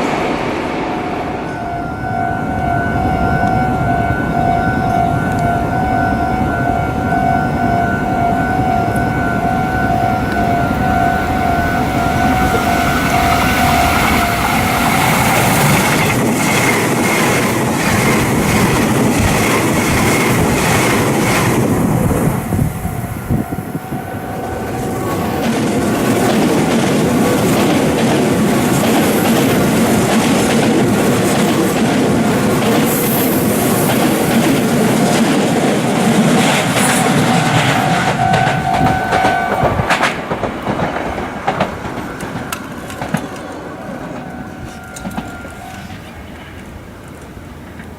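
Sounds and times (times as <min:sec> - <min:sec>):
steady pitched tone: 0:00.0 - 0:26.2, 0:35.9 - 0:47.1
electric train passing: 0:00.0 - 0:47.9
wheels clacking over rail joints: 0:08.3 - 0:22.7, 0:24.4 - 0:47.9.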